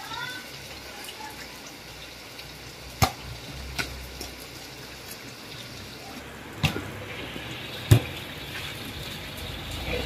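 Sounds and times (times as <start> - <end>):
heavy rain falling: 5.5 - 10.0.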